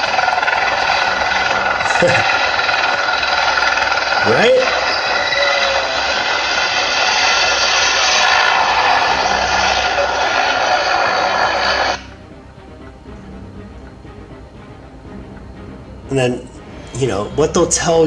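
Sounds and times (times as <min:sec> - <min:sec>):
helicopter turbine and rotor roar: 0:00.0 - 0:18.0.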